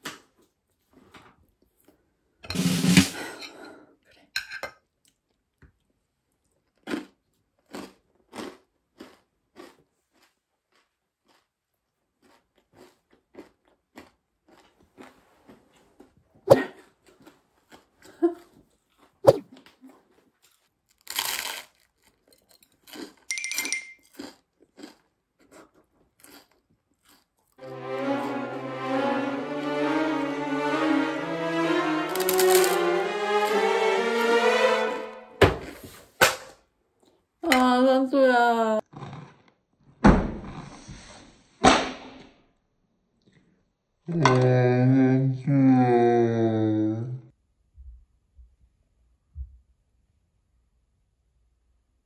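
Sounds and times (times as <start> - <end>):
crisp toast crunching: 6.6 - 15.1, 20.4 - 23.3, 24.0 - 27.6
music: 27.6 - 35.8.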